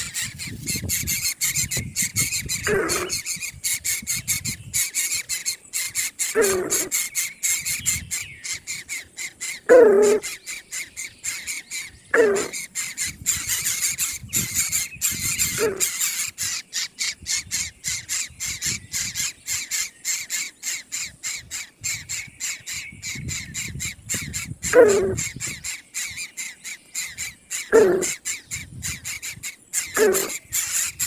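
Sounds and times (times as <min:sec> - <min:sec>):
bird squealing: 0:00.0 - 0:31.0.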